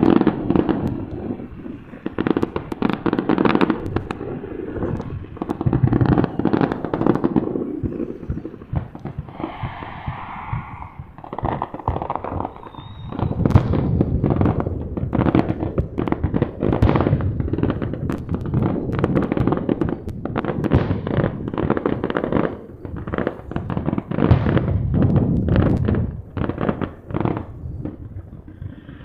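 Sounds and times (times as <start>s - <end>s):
fireworks bursting and crackling: 0.0s - 29.0s.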